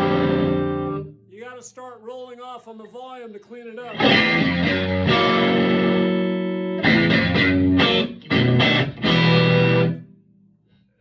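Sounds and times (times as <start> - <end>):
overdriven electric guitar chords: 0.0 - 1.2, 3.9 - 10.2.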